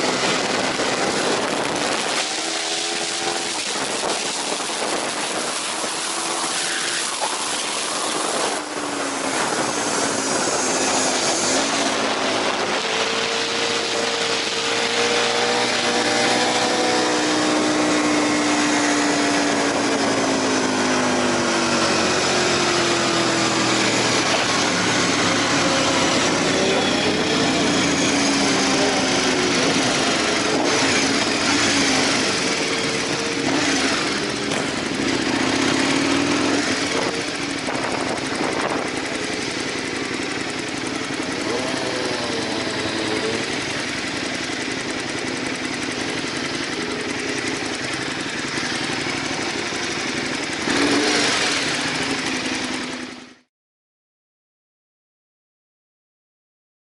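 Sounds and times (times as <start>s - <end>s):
wind rush: 0.0s - 22.2s, 31.9s - 40.2s
motorcycle engine: 0.0s - 53.5s.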